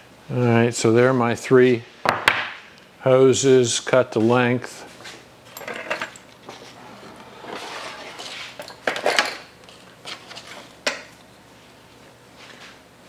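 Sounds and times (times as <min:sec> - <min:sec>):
rubber hose rustling and scraping: 0:06.4 - 0:10.8.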